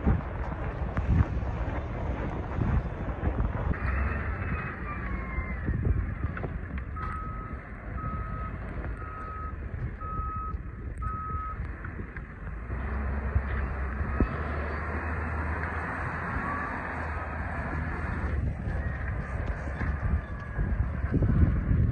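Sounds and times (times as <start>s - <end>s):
engine rumbling: 0.0s - 21.9s
vehicle reversing alarm beeping: 3.8s - 11.6s.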